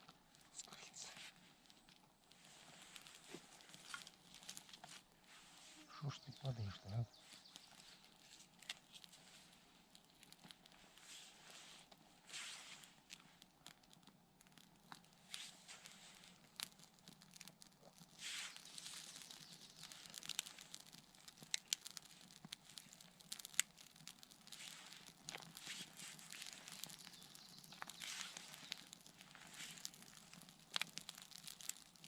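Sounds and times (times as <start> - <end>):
bark and twigs rustling: 0.0 - 32.0
twigs snapping: 2.9 - 5.0, 7.2 - 11.0, 12.8 - 32.0.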